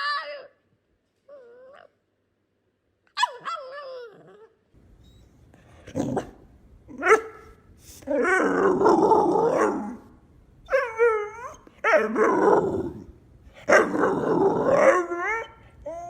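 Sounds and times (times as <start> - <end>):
dog whining: 1.3 - 2.0, 3.2 - 6.3, 6.9 - 13.0, 13.6 - 16.0
dog yip: 3.1 - 5.3
dog moaning and grumbling: 3.8 - 4.5, 5.6 - 7.1, 7.9 - 16.0.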